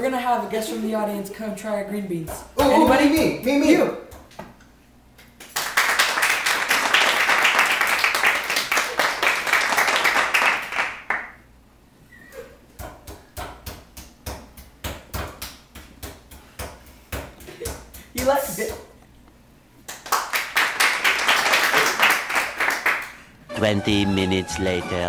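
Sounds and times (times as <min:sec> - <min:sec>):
crowd applause: 0:05.6 - 0:11.3, 0:20.1 - 0:23.8.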